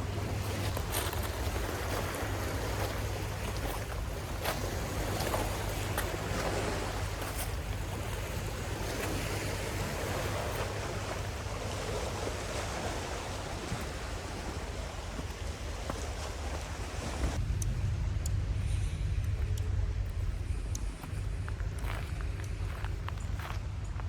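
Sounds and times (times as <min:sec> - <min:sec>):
sea waves washing on beach: 0:00.0 - 0:17.9
wind rumbling on microphone: 0:00.0 - 0:24.0.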